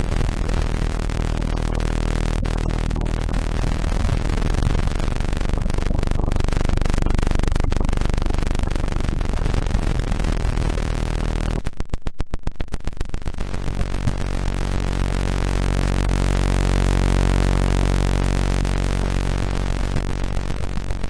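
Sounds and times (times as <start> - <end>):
low steady hums: 0.0 - 11.6
electronic noisy drone: 0.0 - 21.0
rapid electronic pulsing: 0.0 - 21.0.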